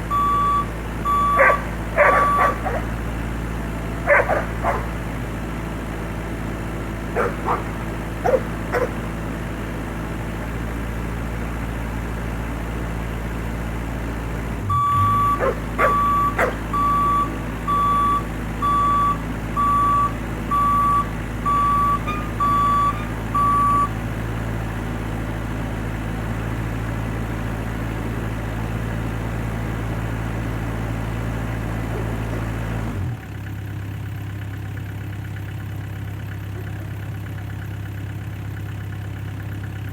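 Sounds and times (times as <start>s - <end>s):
excavator engine running: 0.0s - 39.9s
travel alarm beeping: 0.1s - 2.8s, 14.7s - 24.0s
dog barking: 1.3s - 3.0s, 4.0s - 5.1s, 7.1s - 9.0s, 15.3s - 16.8s, 31.9s - 32.5s, 36.5s - 37.0s.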